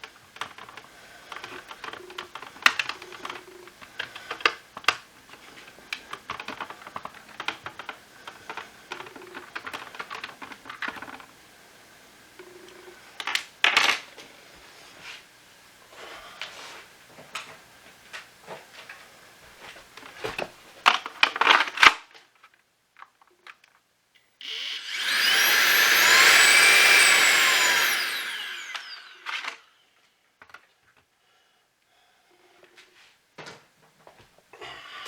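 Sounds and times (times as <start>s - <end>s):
plastic parts clicking: 0.0s - 11.3s, 20.4s - 23.8s
small electric motor whirring: 24.4s - 29.8s.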